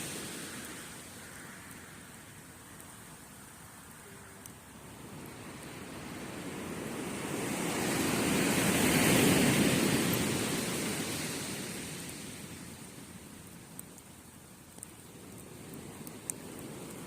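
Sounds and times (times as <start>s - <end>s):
ocean wave breaking: 0.0s - 1.5s, 5.0s - 13.0s.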